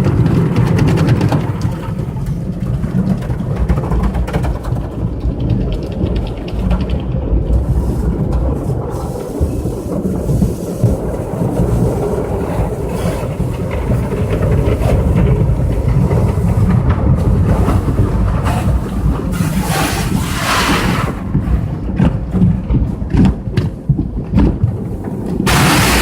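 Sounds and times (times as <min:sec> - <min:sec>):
car wash equipment rumbling: 0:00.0 - 0:26.0
water spray hissing: 0:07.7 - 0:16.6, 0:17.2 - 0:21.2, 0:25.5 - 0:26.0.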